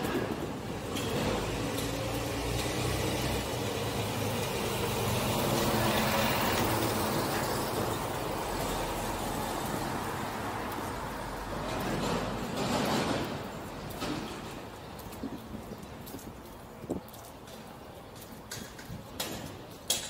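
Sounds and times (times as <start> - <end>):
road noise: 0.0 - 20.0
heavy vehicle engine passing: 0.6 - 14.5.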